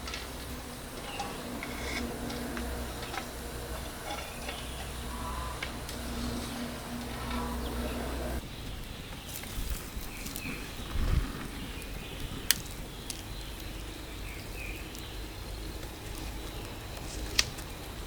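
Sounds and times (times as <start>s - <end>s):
low background noise: 0.0s - 18.0s.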